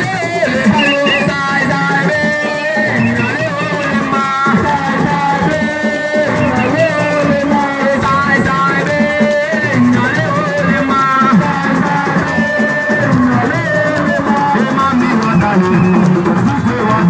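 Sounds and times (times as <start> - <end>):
drums: 0.0 - 17.0
shakers: 0.0 - 17.0
bending melodic line: 0.8 - 1.5.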